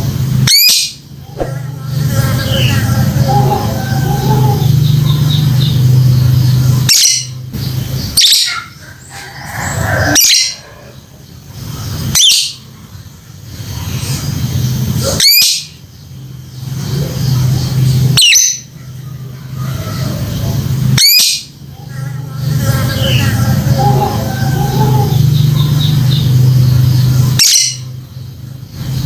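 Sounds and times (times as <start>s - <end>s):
steady low hum: 0.0s - 8.2s
lovebird contact calls: 1.3s - 1.7s.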